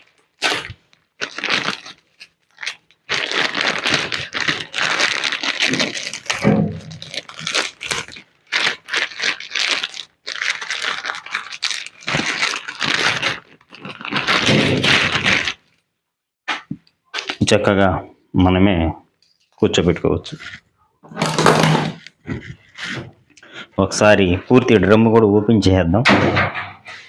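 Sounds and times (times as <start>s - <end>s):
plastic packaging crinkling and tearing: 0.0s - 15.8s, 17.1s - 17.6s.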